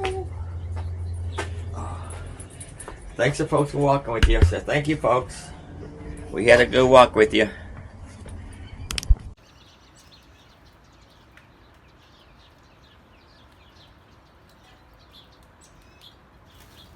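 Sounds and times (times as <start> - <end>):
birds chirping: 0.0 - 16.9
sharp knock: 4.2 - 4.6.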